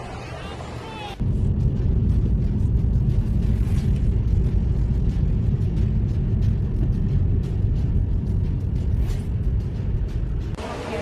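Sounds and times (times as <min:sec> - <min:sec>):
strong wind buffeting microphone: 0:01.2 - 0:10.6.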